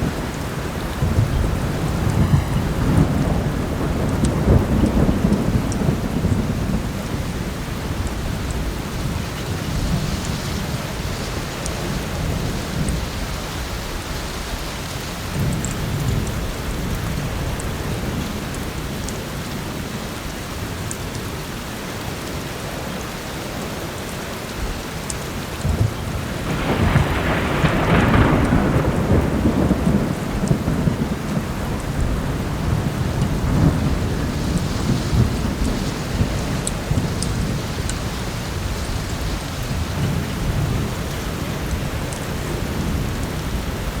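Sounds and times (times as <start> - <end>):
low rumbling thunder: 0.0 - 14.6, 25.6 - 44.0
heavy rain: 0.0 - 44.0.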